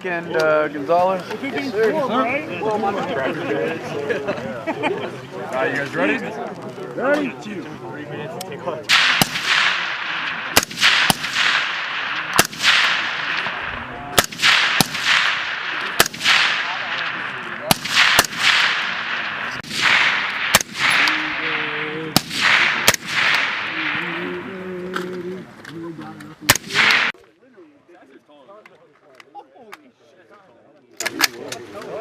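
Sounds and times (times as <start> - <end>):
rifle shots echoing: 8.9 - 24.5, 26.4 - 27.2.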